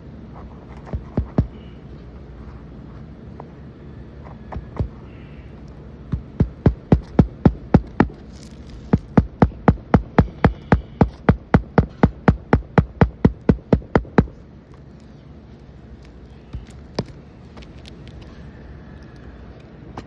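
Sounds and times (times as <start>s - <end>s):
hammer nailing shingle: 0.7s - 1.8s, 4.5s - 15.1s, 16.0s - 18.3s.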